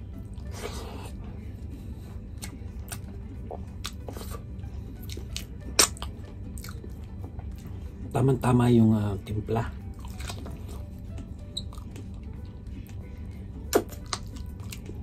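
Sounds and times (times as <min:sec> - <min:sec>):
wet chewing and mouth smacks: 0:02.4 - 0:04.4, 0:05.0 - 0:07.7, 0:10.0 - 0:13.0, 0:13.7 - 0:15.0.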